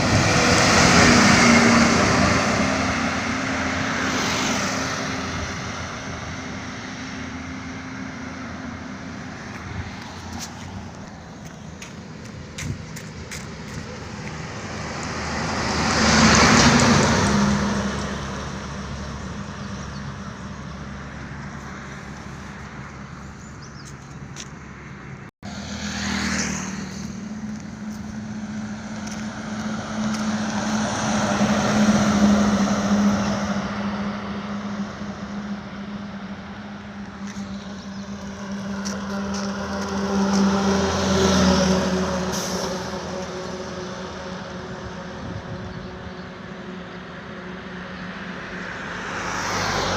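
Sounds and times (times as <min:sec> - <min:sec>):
traffic noise: 0:00.0 - 0:49.9
vehicle engine running: 0:26.4 - 0:31.8.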